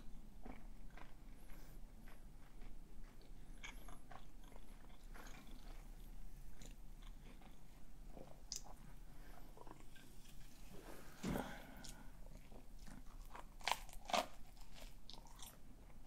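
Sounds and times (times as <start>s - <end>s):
man chewing food: 0.0s - 16.0s
wet mouth clicks: 8.5s - 8.8s.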